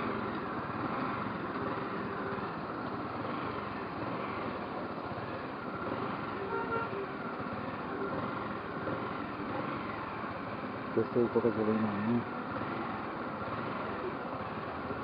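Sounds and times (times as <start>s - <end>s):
motorcycle road and engine noise: 0.0s - 15.0s
vehicle horn toot: 6.4s - 7.1s.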